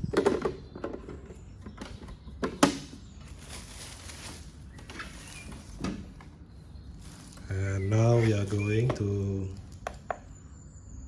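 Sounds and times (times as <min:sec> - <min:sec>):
plastic knocks and clicks: 0:00.1 - 0:02.9.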